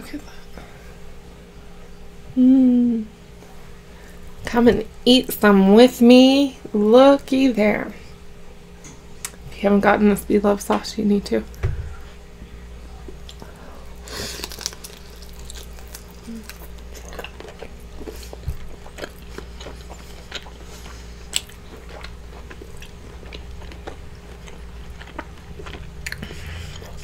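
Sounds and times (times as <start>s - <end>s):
faint steady hum: 0.0s - 27.0s
person chewing shellfish: 13.1s - 27.0s.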